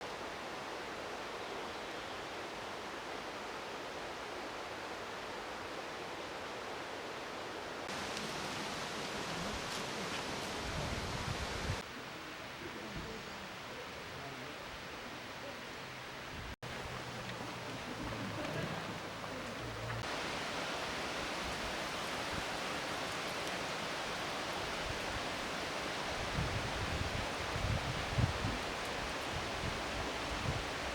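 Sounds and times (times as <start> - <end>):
stream and waterfall rushing: 0.0 - 11.8, 18.8 - 30.9.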